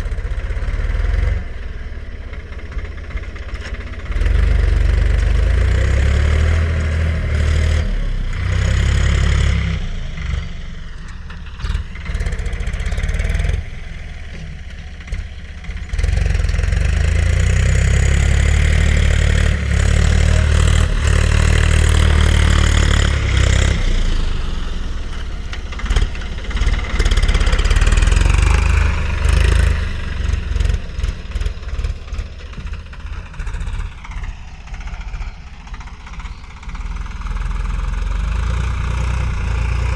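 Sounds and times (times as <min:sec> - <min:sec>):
tractor diesel engine rumbling: 0:00.0 - 0:39.9.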